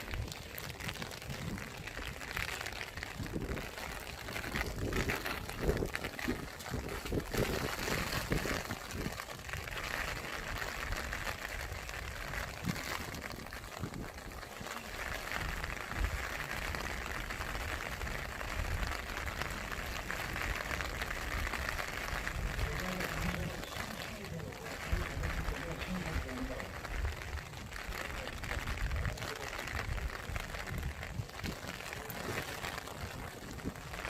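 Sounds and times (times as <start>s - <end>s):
rain falling steadily: 0.0s - 34.0s.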